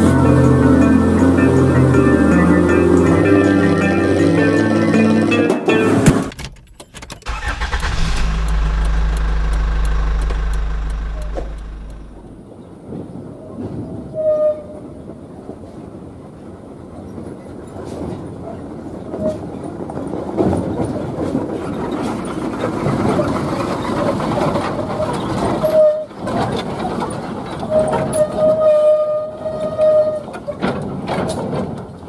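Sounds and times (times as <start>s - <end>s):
truck horn: 0.0s - 6.2s
diesel truck engine under load: 0.0s - 12.6s, 19.5s - 28.7s.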